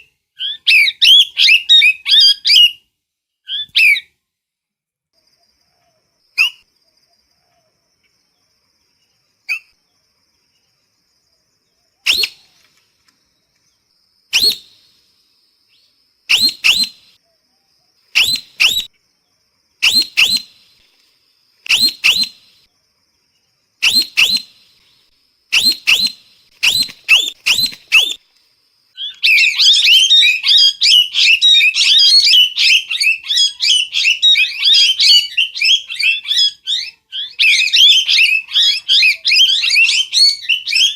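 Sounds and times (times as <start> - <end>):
parrot calling: 16.3 - 17.1, 21.7 - 22.4, 25.5 - 28.2, 29.0 - 40.9.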